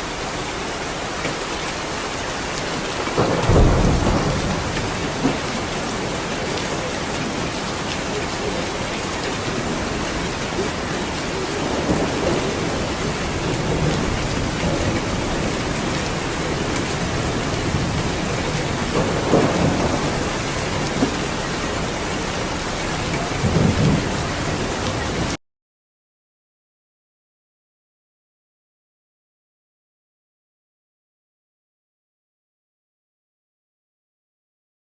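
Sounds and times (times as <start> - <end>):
heavy rain: 0.0 - 25.4
thunder rumbling: 2.7 - 25.4.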